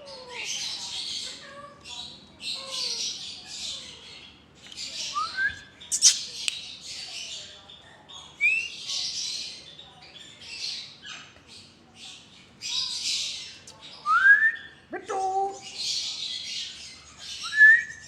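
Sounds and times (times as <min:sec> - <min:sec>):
parrots squawking: 0:05.9 - 0:06.5.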